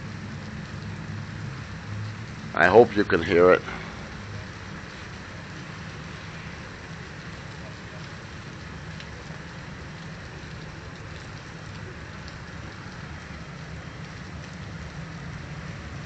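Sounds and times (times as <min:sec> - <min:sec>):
heavy rain hissing: 0:00.0 - 0:16.0
faint drip ticks: 0:03.6 - 0:16.0.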